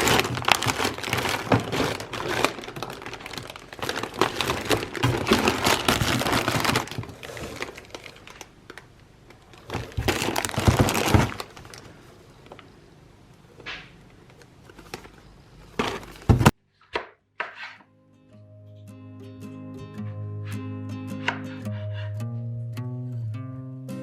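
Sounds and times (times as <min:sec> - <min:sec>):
packaging crinkling and rustling: 0:00.0 - 0:12.6, 0:14.2 - 0:16.6.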